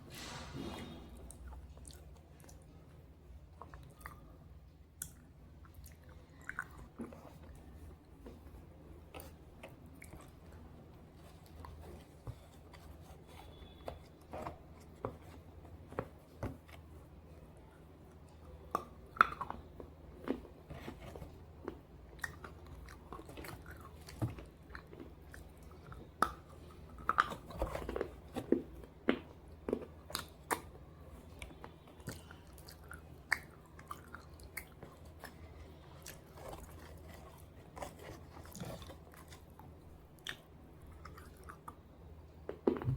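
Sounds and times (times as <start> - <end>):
person chewing slate: 18.6 - 41.8.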